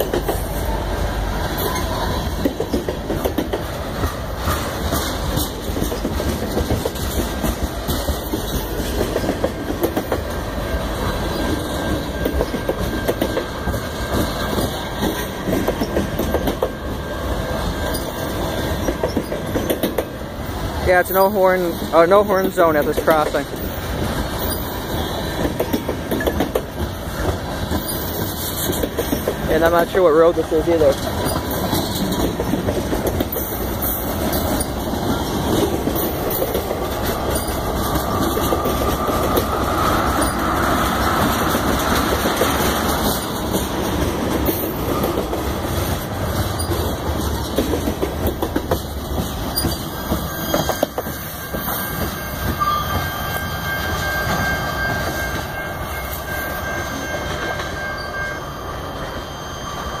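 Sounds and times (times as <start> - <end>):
freight train wheels clattering: 0.0 - 58.6
high wheel squeal: 10.5 - 19.8, 23.6 - 26.5, 27.1 - 29.2, 49.4 - 60.0.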